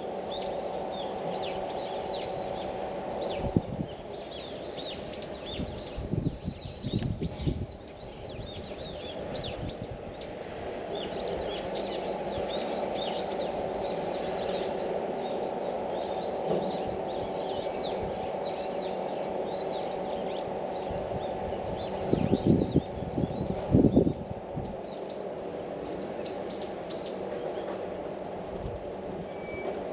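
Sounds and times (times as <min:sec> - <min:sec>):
steady low hum: 0:00.0 - 0:29.9
small birds chirping: 0:00.2 - 0:29.9.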